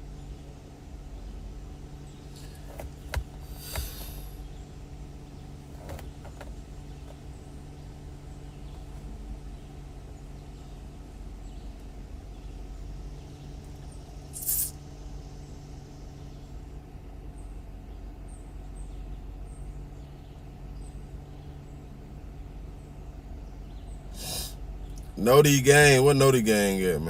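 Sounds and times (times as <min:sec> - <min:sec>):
car engine running: 0:00.0 - 0:27.0
loud hiss: 0:03.4 - 0:04.4, 0:14.3 - 0:14.8, 0:24.1 - 0:24.6.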